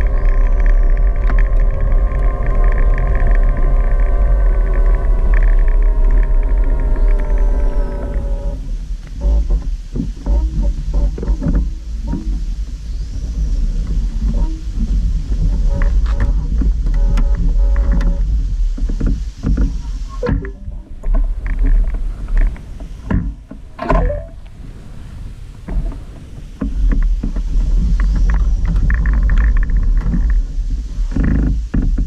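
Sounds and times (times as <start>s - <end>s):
wind buffeting microphone: 0.0s - 32.0s
rattles and knocks: 9.2s - 12.5s, 13.8s - 24.4s.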